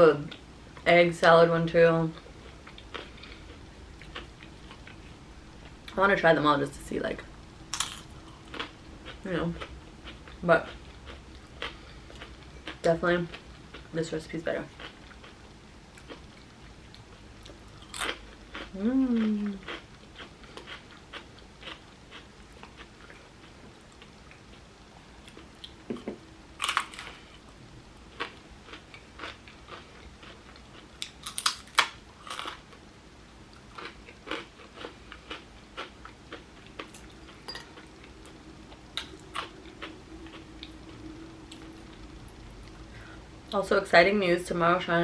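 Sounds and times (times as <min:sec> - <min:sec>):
faint steady hum: 0:00.0 - 0:45.0
crunchy chip bites: 0:07.7 - 0:08.7, 0:31.0 - 0:32.6
chewing: 0:14.7 - 0:24.6, 0:28.1 - 0:32.6, 0:33.5 - 0:43.1.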